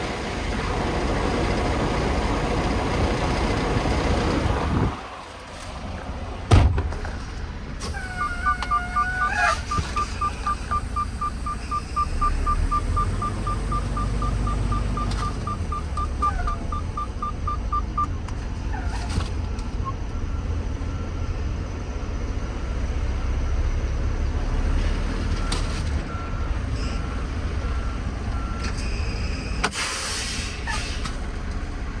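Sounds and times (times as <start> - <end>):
truck engine idling: 0.0 - 23.0
rapid electronic beeps: 8.1 - 18.1.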